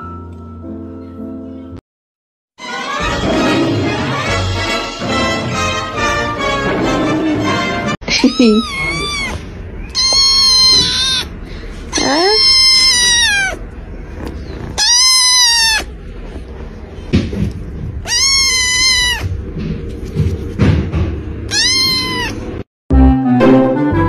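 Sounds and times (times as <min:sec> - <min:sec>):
kitten meowing loudly: 0:08.2 - 0:11.3, 0:11.9 - 0:13.6, 0:14.7 - 0:15.9, 0:18.0 - 0:19.3, 0:21.5 - 0:22.4.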